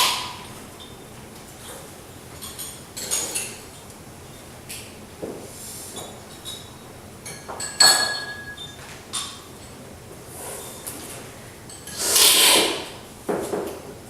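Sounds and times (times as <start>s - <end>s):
cups and tableware clinking: 6.0s - 9.8s.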